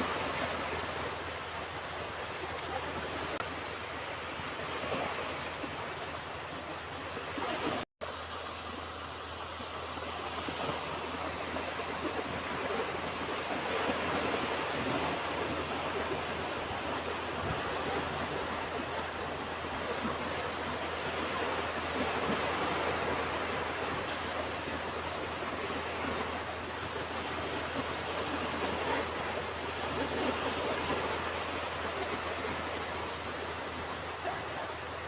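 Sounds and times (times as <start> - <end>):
ocean waves washing onto beach: 0.0 - 35.0.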